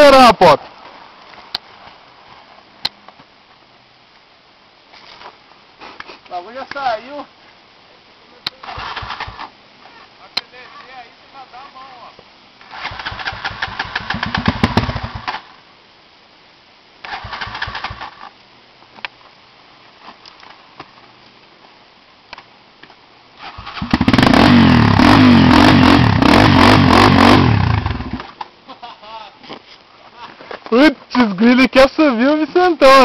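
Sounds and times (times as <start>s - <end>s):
motorcycle engine revving: 12.7s - 15.4s, 23.4s - 28.3s.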